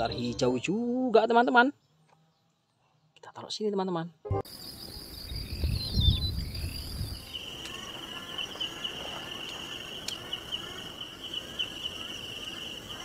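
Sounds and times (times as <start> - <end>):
insects trilling: 4.5 - 13.0.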